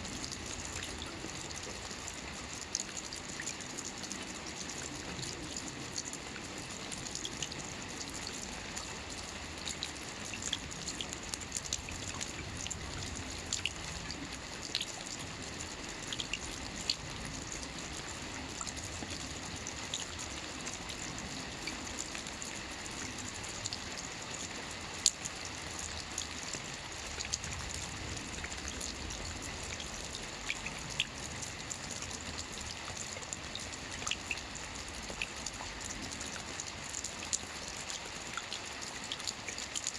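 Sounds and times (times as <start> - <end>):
rain falling on water: 0.0 - 39.9
raindrop plinks: 0.0 - 39.9.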